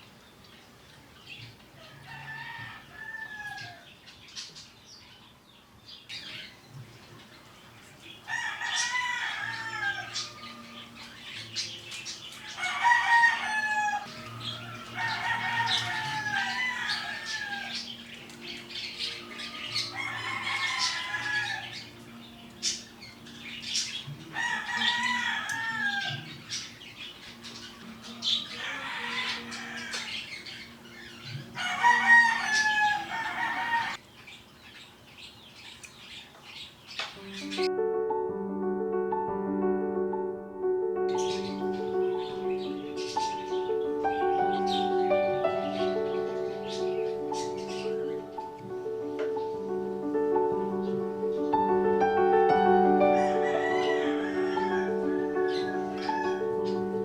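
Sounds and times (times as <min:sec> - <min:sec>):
roosters crowing: 0:01.7 - 0:04.0, 0:08.2 - 0:34.0, 0:52.7 - 0:57.0.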